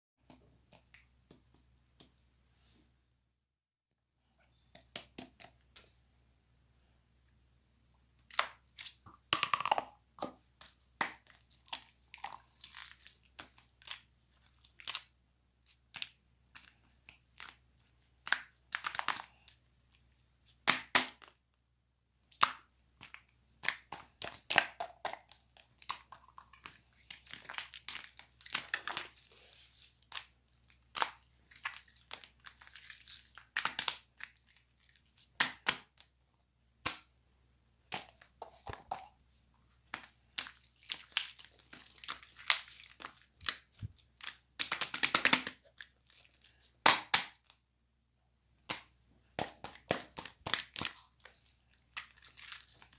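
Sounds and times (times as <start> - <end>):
slime popping and crackling: 30.0 - 34.7, 39.8 - 47.5, 48.7 - 52.9.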